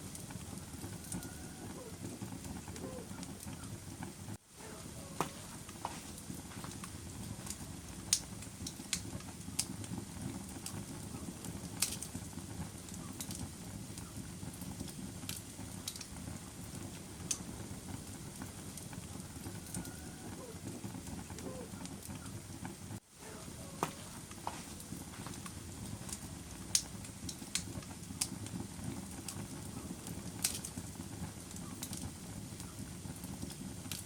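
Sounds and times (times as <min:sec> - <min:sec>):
fire crackles and pops: 0:00.0 - 0:34.0
fire rumbling in a fireplace: 0:00.0 - 0:34.0.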